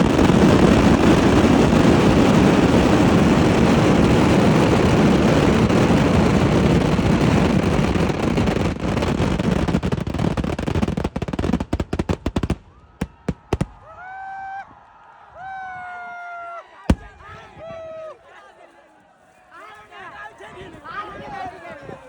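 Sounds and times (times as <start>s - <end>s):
fireworks explosions: 0.0s - 14.1s, 16.9s - 17.7s.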